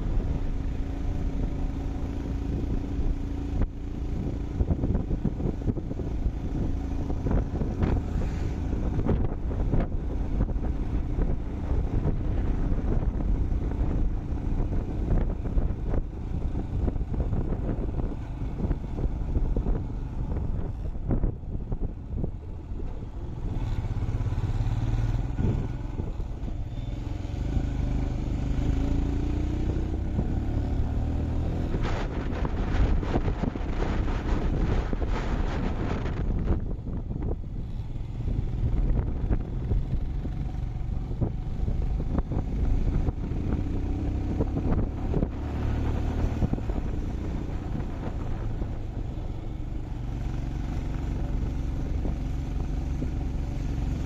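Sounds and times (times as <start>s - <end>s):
motorcycle engine rumbling: 0.0s - 54.0s.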